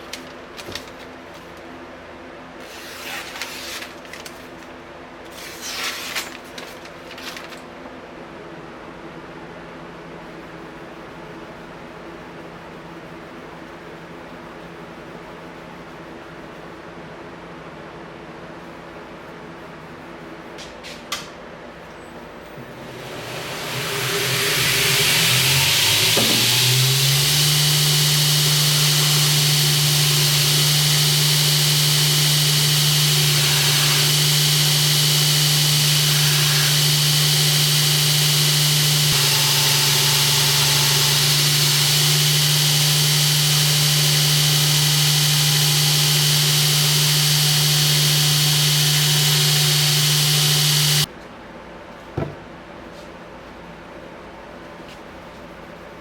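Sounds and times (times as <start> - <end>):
power tool motor humming: 22.6 - 51.1.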